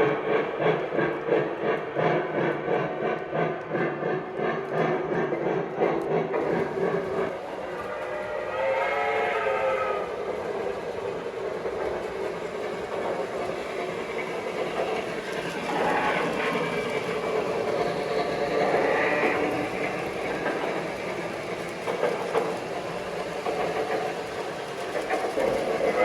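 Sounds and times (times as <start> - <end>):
model train rolling on track: 0.0 - 26.0
model steam engine effects: 0.1 - 26.0
train whistle: 7.5 - 10.3, 18.7 - 19.8.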